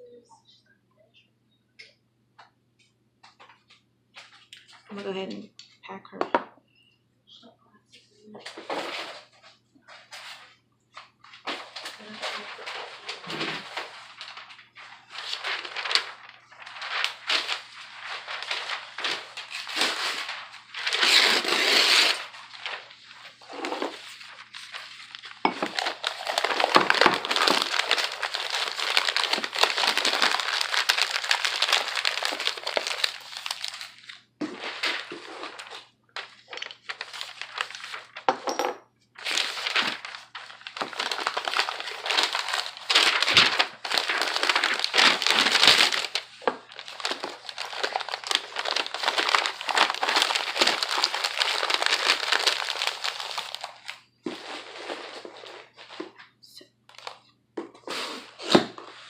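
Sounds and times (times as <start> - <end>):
packing paper crumpling: 10.2 - 38.3, 39.2 - 56.1, 56.9 - 57.2.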